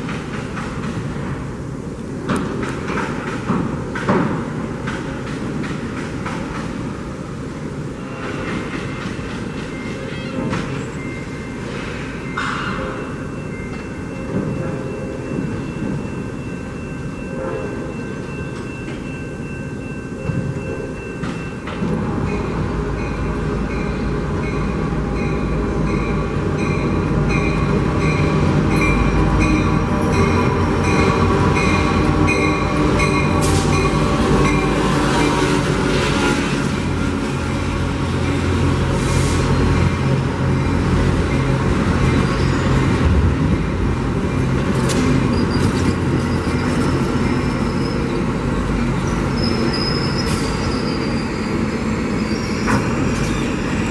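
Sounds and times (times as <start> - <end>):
diesel locomotive engine drone: 0.0 - 53.9
train wheel clicks and squeal: 8.0 - 17.1, 18.0 - 24.6, 41.2 - 43.0, 44.4 - 53.9
train bell ringing: 8.0 - 45.6, 46.2 - 53.9.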